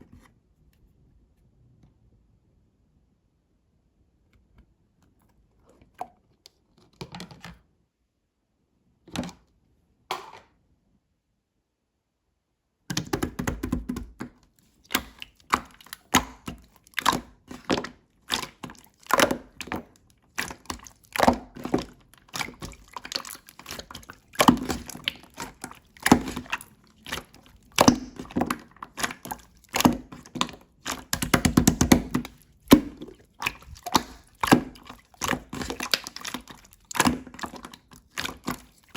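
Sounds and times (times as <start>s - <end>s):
slime crackling and popping: 14.9s - 38.9s.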